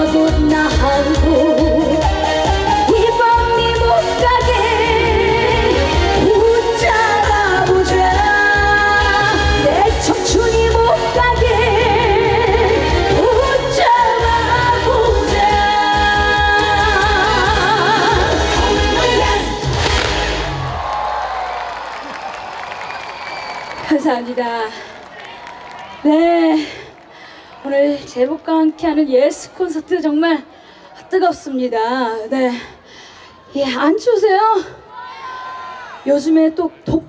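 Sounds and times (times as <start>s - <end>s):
person singing with vibrato: 0.0s - 20.4s
live band playing: 0.0s - 21.0s.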